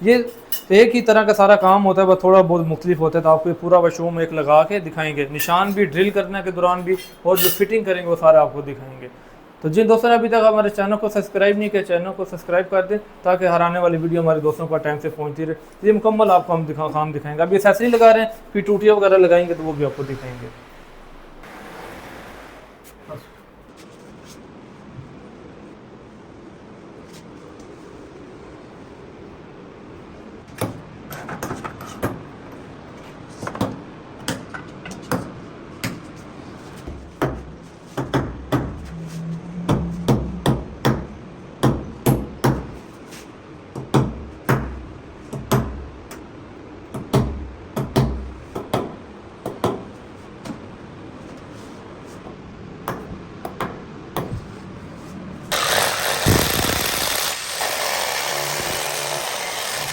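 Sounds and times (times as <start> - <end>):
hammer blows: 38.0 - 42.8
power tool running: 55.5 - 59.9.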